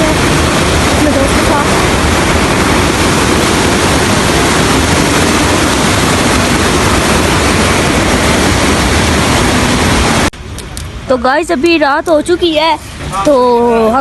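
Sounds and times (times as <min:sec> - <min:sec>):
fast-flowing river rushing: 0:00.0 - 0:10.3.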